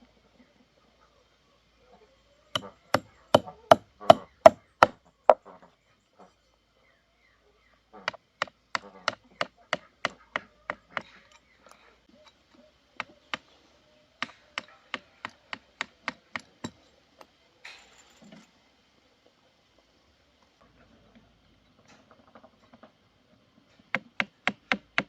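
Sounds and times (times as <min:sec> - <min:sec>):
tool striking wood: 0:02.6 - 0:05.0, 0:08.1 - 0:11.2, 0:23.9 - 0:25.0.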